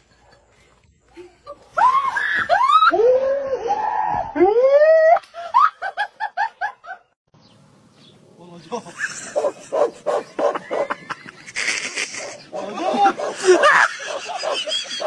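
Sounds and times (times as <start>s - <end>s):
short laughing pulses: 11.4s - 14.7s.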